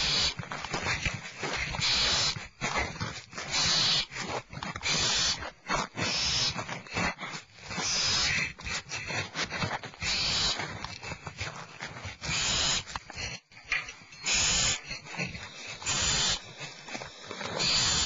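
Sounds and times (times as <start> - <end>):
owl nestlings hissing: 0.0 - 0.4, 1.6 - 6.6, 7.6 - 8.9, 10.0 - 10.6, 12.2 - 13.0, 14.2 - 18.0.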